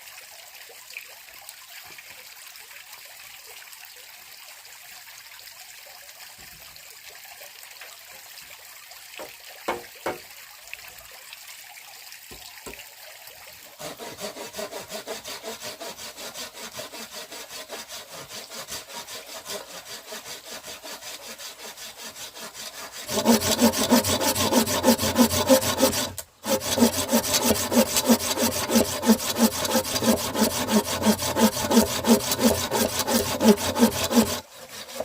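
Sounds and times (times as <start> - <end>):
knocks: 9.2 - 10.2
hand saw cutting wood: 13.8 - 35.0.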